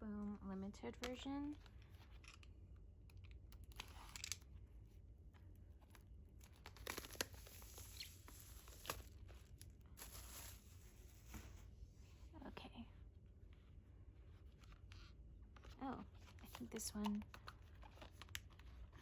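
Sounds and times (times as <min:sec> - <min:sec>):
plastic wrap tearing and crinkling: 0:03.6 - 0:04.5, 0:06.4 - 0:11.3.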